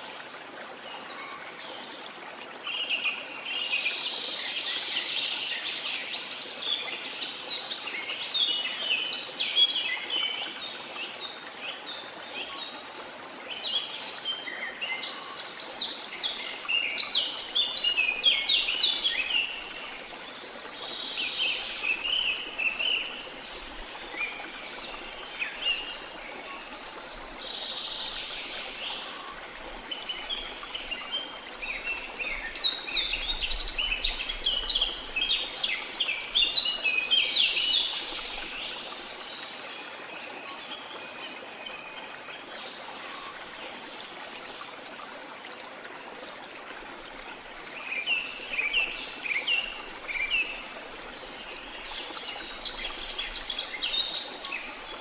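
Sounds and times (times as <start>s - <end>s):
running water hiss: 0.0s - 55.0s.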